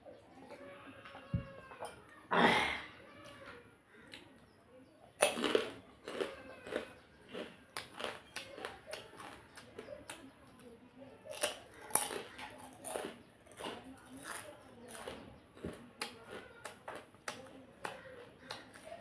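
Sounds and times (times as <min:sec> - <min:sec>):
sharp crunches: 0:05.2 - 0:09.8, 0:11.3 - 0:19.0
chewing and biting: 0:05.2 - 0:19.0.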